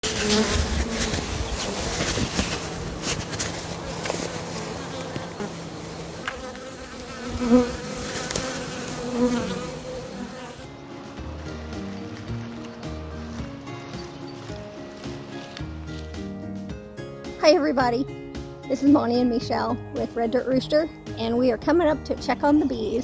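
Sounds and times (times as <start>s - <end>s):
bee flying past: 0.0s - 10.7s
bees buzzing: 0.0s - 10.7s.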